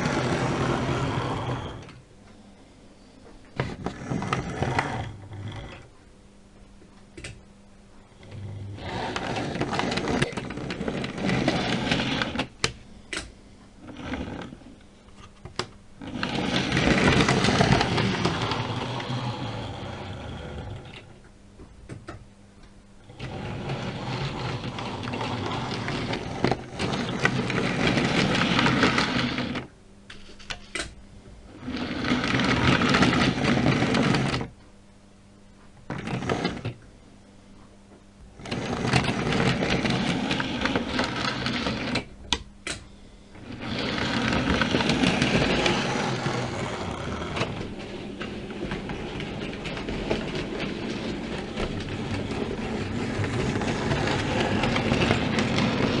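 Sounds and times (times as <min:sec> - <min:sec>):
model train motor whirring: 0:00.0 - 0:01.9, 0:08.4 - 0:12.5, 0:16.0 - 0:21.0, 0:23.1 - 0:29.7, 0:31.6 - 0:34.5, 0:38.4 - 0:42.1, 0:43.4 - 0:56.0
faint steady hum: 0:00.0 - 0:56.0.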